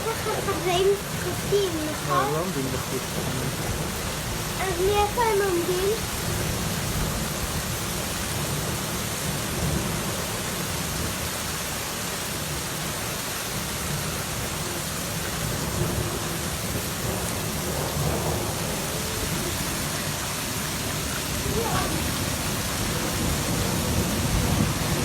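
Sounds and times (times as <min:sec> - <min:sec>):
torrential rain pouring: 0:00.0 - 0:25.0
low thunder rumbles: 0:02.7 - 0:11.3, 0:13.8 - 0:25.0.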